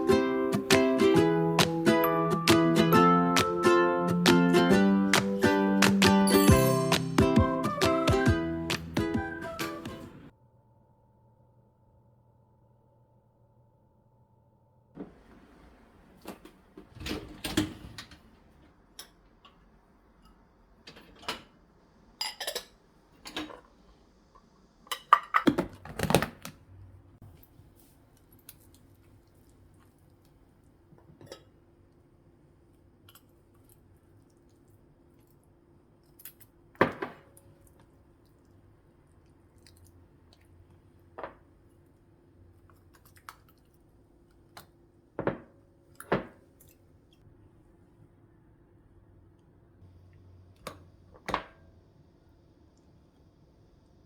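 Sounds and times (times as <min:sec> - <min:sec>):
dishes and cutlery clinking: 0:22.2 - 0:23.7, 0:31.0 - 0:31.6.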